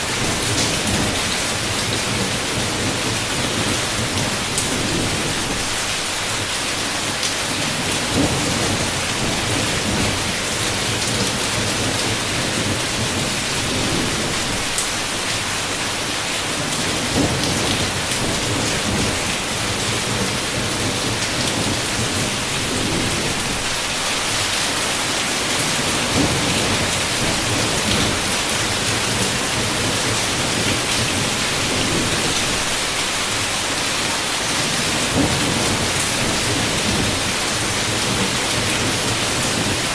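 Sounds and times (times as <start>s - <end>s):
heavy rain on a window: 0.0s - 39.9s
thunder rumbling: 7.7s - 14.8s, 16.8s - 23.8s, 25.9s - 33.4s, 34.6s - 39.9s.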